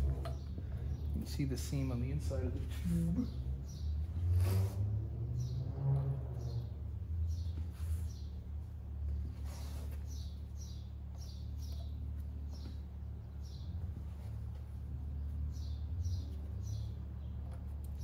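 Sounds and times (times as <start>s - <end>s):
small bird chirping: 6.4s - 18.0s.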